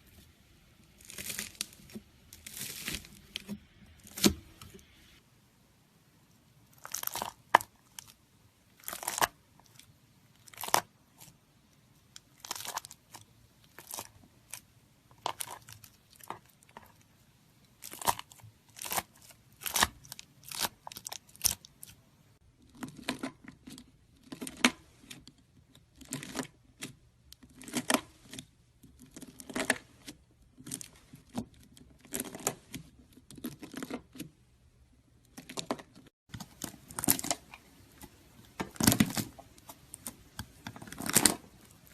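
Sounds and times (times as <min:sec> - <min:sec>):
knife crunching through slime: 0:17.8 - 0:21.9, 0:38.7 - 0:41.9.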